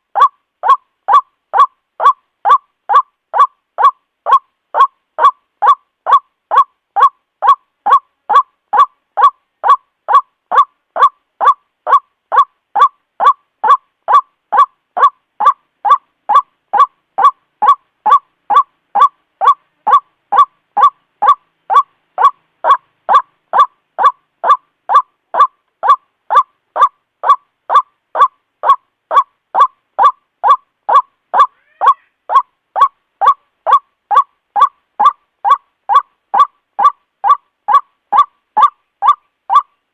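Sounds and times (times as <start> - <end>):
bird calling short repeated notes: 0.1 - 39.8.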